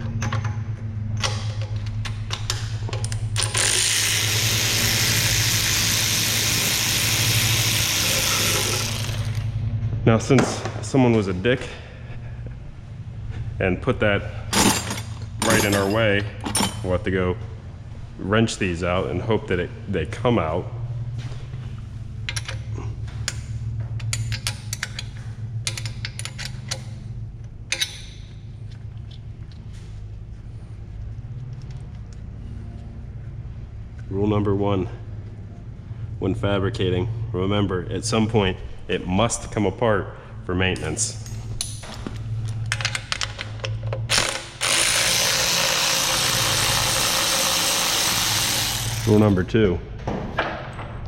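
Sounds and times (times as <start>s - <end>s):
steady low hum: 0.0s - 51.0s
hand ratchet clicking: 2.3s - 9.5s, 44.1s - 49.3s.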